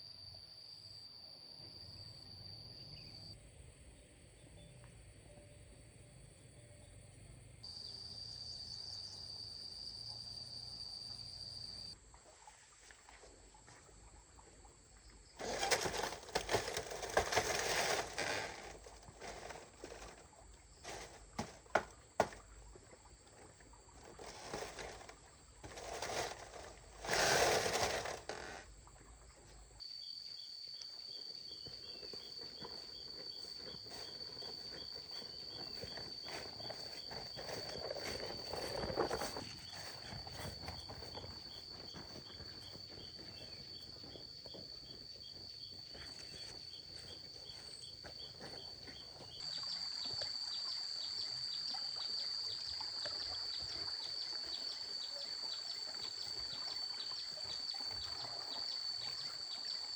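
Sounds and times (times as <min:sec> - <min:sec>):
loud rustling bursts: 0:15.4 - 0:20.2, 0:24.2 - 0:28.6.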